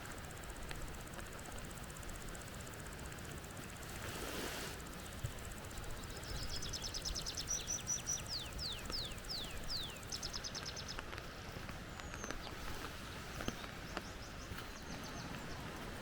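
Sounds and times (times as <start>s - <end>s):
steady background hiss: 0.0s - 16.0s
songbird singing: 4.8s - 16.0s.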